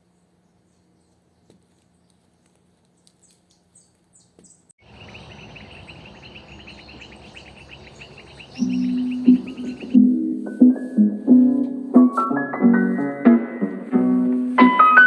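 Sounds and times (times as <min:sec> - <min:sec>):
high chirps: 0:04.8 - 0:10.1
low hiss: 0:04.9 - 0:15.0.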